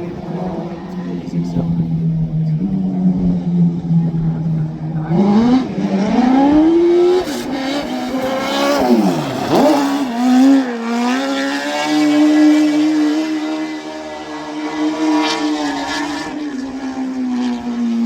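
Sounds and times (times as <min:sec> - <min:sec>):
engines revving hard: 0:04.9 - 0:18.0.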